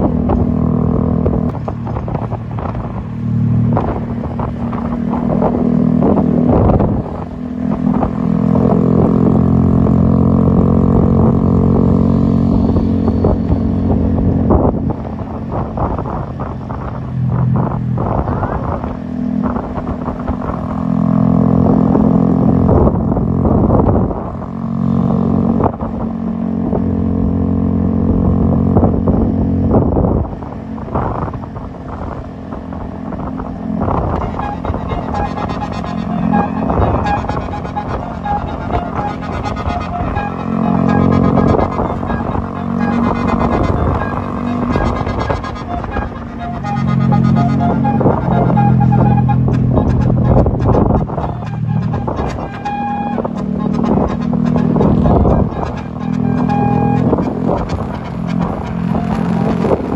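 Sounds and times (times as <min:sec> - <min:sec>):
air horns playing a melody: 0:33.8 - 0:59.9.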